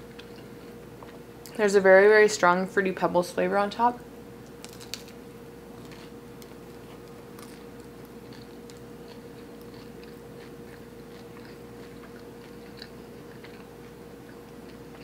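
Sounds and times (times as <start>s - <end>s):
chewing with mouth clicks: 0.2s - 1.6s, 5.8s - 15.0s.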